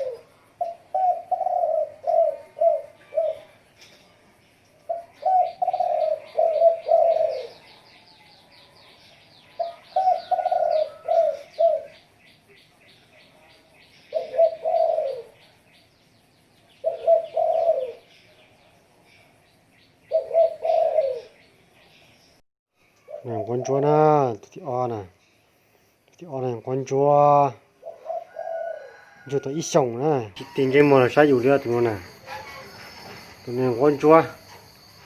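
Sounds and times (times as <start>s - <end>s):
dove cooing: 0.0s - 3.7s, 4.9s - 7.8s, 9.5s - 12.1s, 14.1s - 15.4s, 16.8s - 18.1s, 20.1s - 21.4s, 23.0s - 24.2s, 27.8s - 29.3s, 30.4s - 35.0s
small bird chirping: 0.0s - 27.1s.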